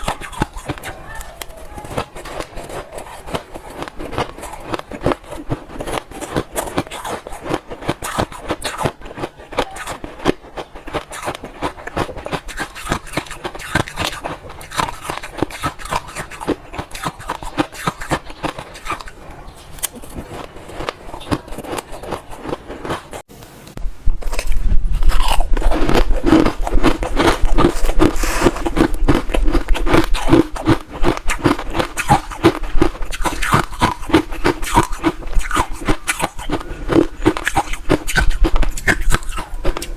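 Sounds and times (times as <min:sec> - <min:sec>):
ice crunching between teeth: 0:00.0 - 0:19.2, 0:19.8 - 0:23.3, 0:24.3 - 0:39.9.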